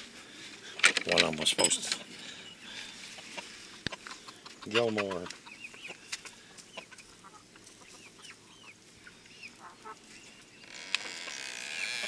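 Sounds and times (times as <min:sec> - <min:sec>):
chickens clucking softly: 0:03.0 - 0:10.0.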